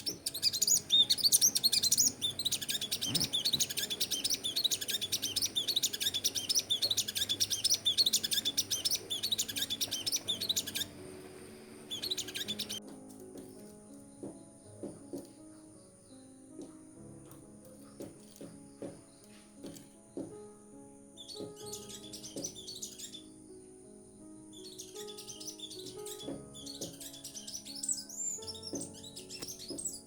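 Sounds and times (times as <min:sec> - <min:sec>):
bird chirping high and thin: 0:00.0 - 0:12.8, 0:21.2 - 0:23.4, 0:24.5 - 0:30.0.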